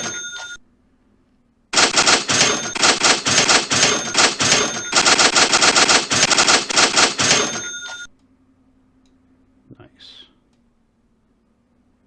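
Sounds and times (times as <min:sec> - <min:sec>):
faint ringing tones: 0:00.0 - 0:00.6, 0:01.8 - 0:08.1
rapid clatter of clicks: 0:00.0 - 0:00.6, 0:01.8 - 0:08.1.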